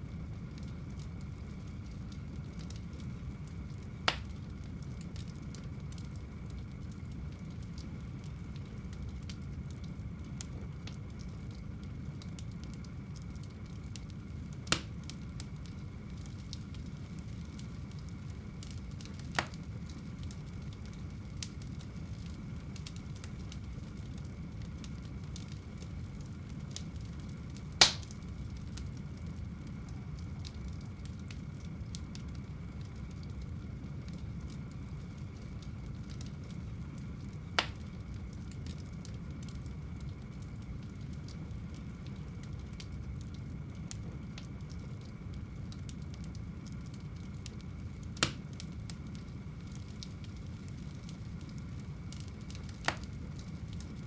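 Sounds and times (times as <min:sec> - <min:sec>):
fireplace fire crackling: 0:00.0 - 0:54.0
sharp pops of burning wood: 0:02.6 - 0:05.3, 0:12.3 - 0:29.0, 0:37.2 - 0:39.1, 0:46.8 - 0:54.0.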